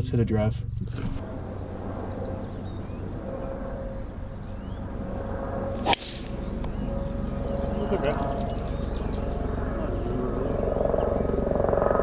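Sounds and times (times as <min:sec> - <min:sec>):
low outdoor rumble: 0:00.0 - 0:11.8
golf club striking ball: 0:05.8 - 0:06.9.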